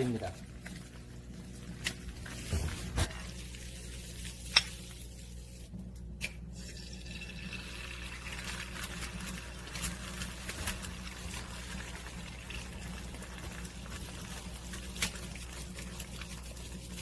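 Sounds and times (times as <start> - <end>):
liquid simmering in a pot: 6.5 - 17.0.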